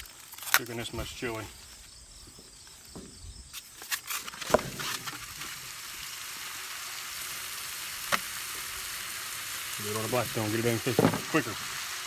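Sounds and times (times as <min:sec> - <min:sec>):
knocks and scrapes on griddle: 0:02.8 - 0:05.9, 0:08.0 - 0:11.9
meat sizzling on a griddle: 0:04.4 - 0:12.0.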